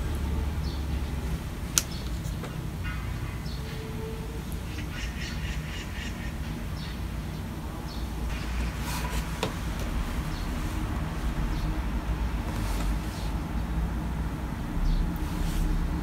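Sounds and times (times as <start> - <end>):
low rumble: 6.3 - 16.0.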